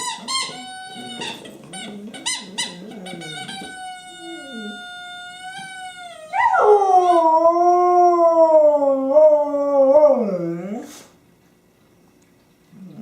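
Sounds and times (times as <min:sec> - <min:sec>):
dog howling: 0:00.5 - 0:10.9.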